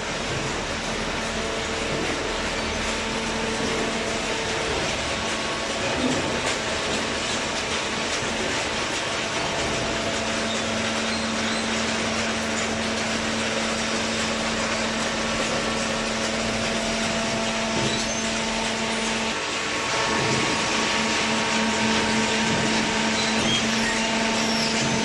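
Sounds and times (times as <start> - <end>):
industrial baler machine running: 0.0 - 25.0.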